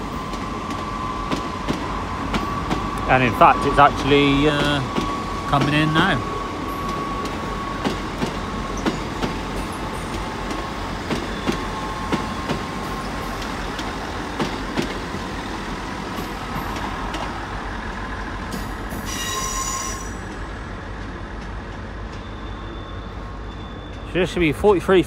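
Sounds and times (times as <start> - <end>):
train rumble: 0.0 - 25.0
high-pitched metallic squeal: 19.0 - 20.3.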